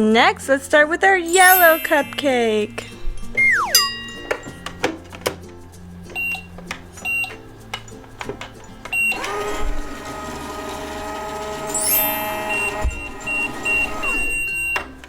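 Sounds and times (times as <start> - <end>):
toy electronic running sound: 1.3 - 2.5, 3.4 - 3.9, 9.0 - 14.8
electronic button beeps: 3.4 - 4.0.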